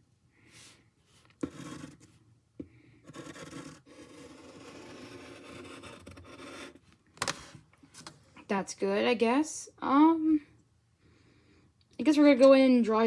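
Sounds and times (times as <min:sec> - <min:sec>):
pencil scratching on paper: 0:01.4 - 0:02.2, 0:03.0 - 0:06.8.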